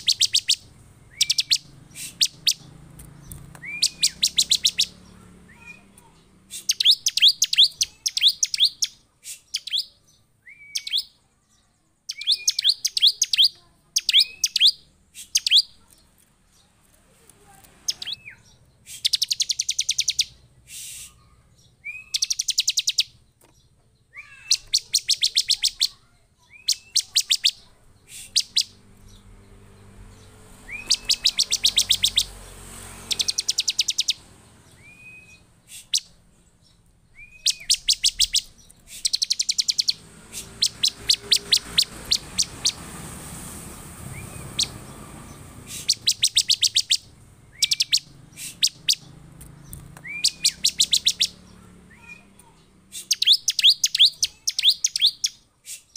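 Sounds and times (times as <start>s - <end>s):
bird calling in fast trills: 0.0s - 2.7s, 3.6s - 10.0s, 12.1s - 15.9s, 17.9s - 20.4s, 21.2s - 23.2s, 24.2s - 28.8s, 30.6s - 36.2s, 37.2s - 43.2s, 44.0s - 49.2s, 50.0s - 55.9s.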